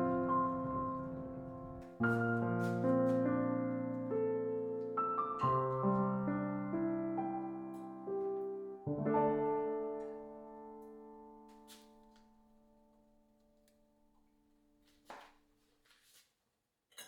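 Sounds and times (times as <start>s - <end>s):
gentle solo piano: 0.0s - 13.4s.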